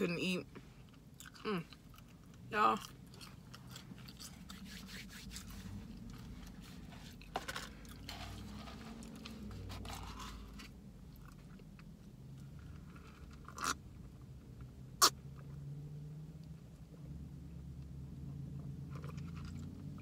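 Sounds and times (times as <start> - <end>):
chewing food: 0.9 - 4.8.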